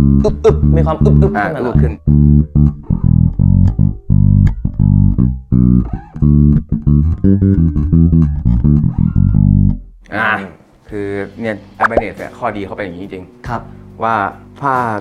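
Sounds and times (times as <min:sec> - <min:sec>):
electric bass notes: 0:00.0 - 0:10.1.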